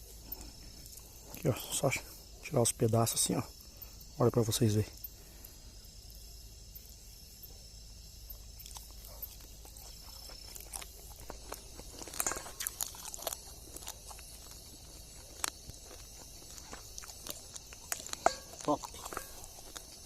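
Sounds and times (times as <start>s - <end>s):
crickets chirring: 0.0s - 20.0s
handling clicks and rustles: 9.0s - 20.0s.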